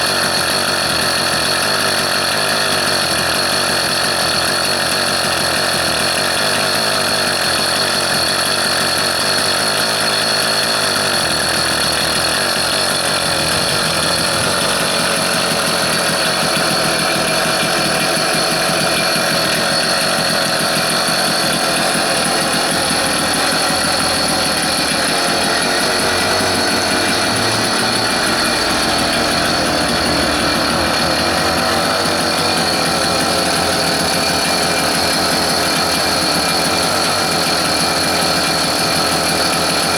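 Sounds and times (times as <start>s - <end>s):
vehicle engine running: 0.0s - 39.9s
high whine: 15.6s - 38.0s.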